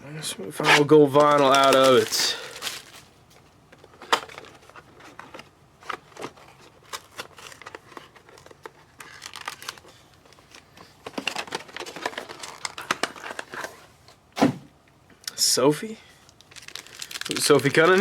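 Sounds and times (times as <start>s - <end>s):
foil wrappers crinkling and tearing: 0.8s - 3.2s, 3.8s - 13.7s, 16.2s - 18.0s.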